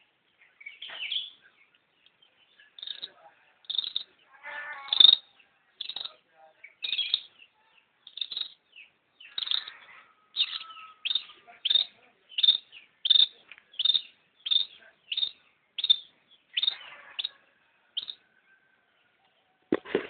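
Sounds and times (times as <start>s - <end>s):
shrike calling: 2.8s - 6.2s, 9.2s - 18.2s.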